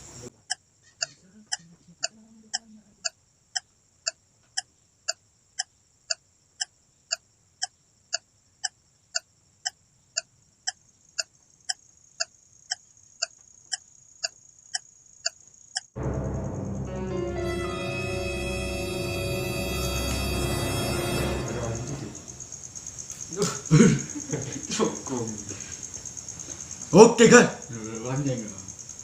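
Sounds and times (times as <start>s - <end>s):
steady high hiss: 0.0s - 0.4s, 16.0s - 29.0s
animal chirping: 0.5s - 2.7s.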